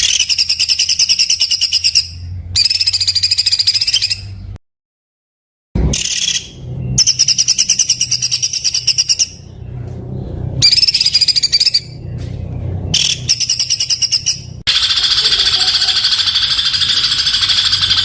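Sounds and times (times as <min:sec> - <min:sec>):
songbird singing rough trills: 0:00.0 - 0:04.6, 0:05.8 - 0:18.0
steady low hum: 0:05.8 - 0:18.0.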